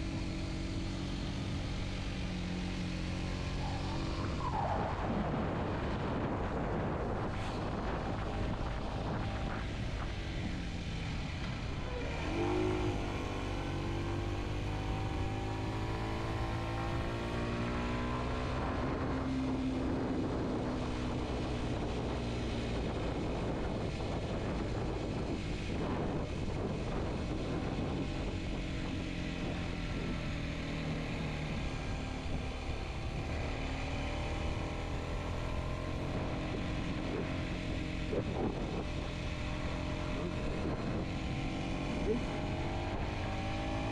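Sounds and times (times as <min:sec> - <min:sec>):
wind noise: 0:00.0 - 0:43.9
motorcycle engine running: 0:18.8 - 0:43.9.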